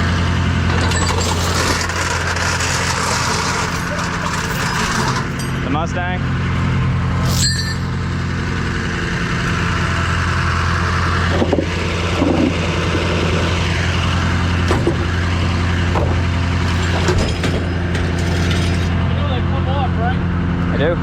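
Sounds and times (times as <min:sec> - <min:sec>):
engine idling: 0:00.0 - 0:21.0
short knocks and clinks: 0:00.7 - 0:02.4, 0:03.4 - 0:05.7, 0:07.2 - 0:08.0, 0:16.6 - 0:18.9.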